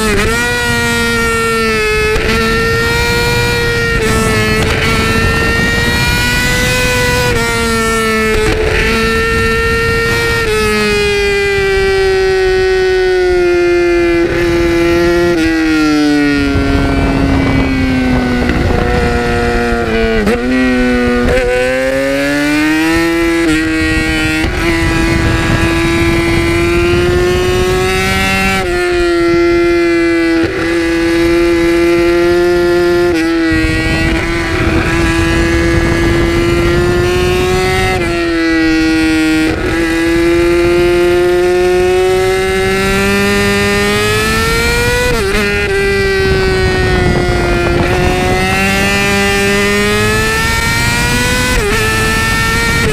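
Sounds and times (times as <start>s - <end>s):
motorcycle engine at high revs: 0.0s - 52.9s.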